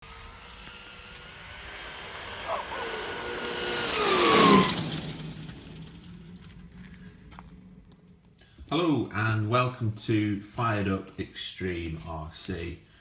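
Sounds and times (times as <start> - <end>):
vehicle passing by: 0.0 - 9.8.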